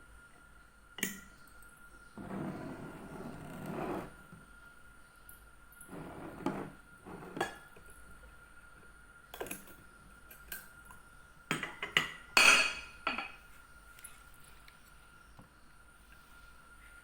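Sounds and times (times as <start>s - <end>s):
dishes and utensils clinking: 11.5s - 13.4s.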